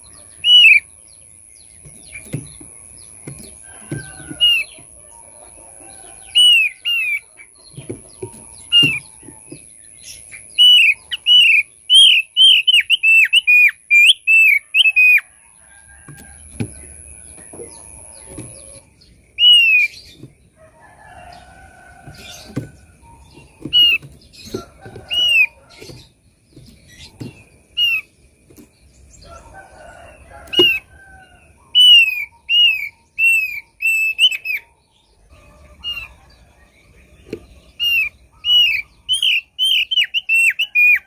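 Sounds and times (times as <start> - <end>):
bird whistled calls: 0.4 - 0.8, 10.5 - 15.2, 19.4 - 20.0.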